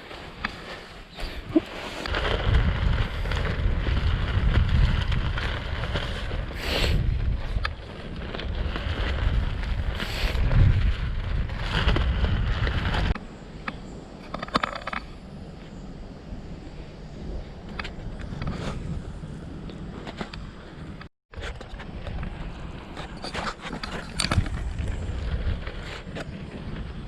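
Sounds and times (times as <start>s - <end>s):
strong wind buffeting microphone: 0.0s - 27.0s.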